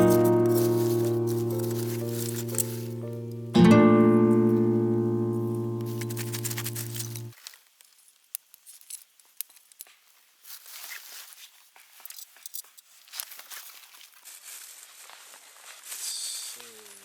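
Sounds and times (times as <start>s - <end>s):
faint crackling and clicking: 5.3s - 10.0s.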